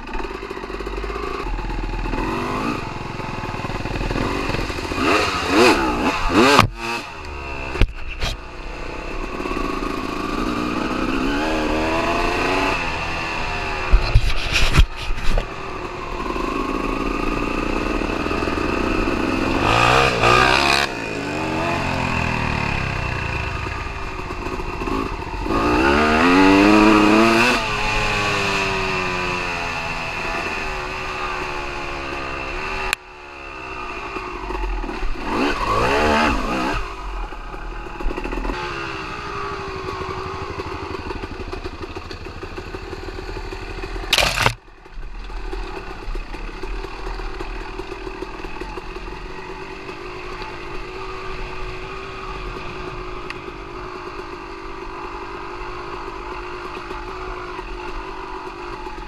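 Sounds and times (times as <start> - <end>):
dirt bike engine revving: 0.0 - 29.5, 43.8 - 44.6.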